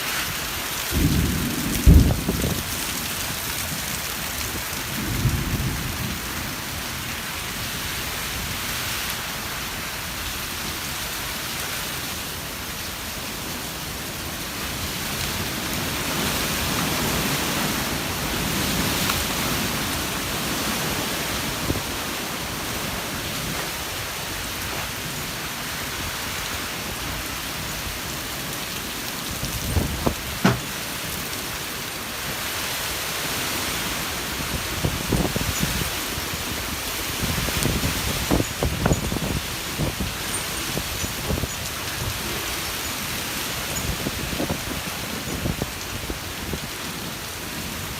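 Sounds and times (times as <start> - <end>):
rain pouring: 0.0 - 47.9.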